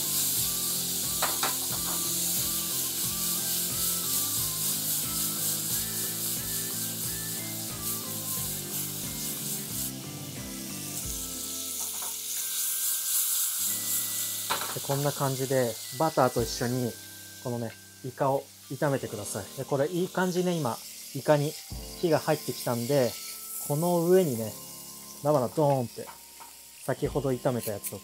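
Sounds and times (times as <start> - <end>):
background music: 0.0 - 28.0
squid sizzling in butter: 0.0 - 28.0.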